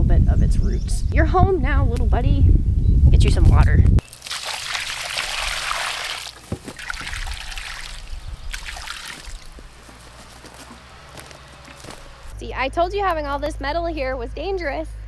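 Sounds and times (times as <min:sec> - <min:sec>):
water splashes: 0:03.4 - 0:12.3
water pouring onto soil: 0:04.0 - 0:12.3.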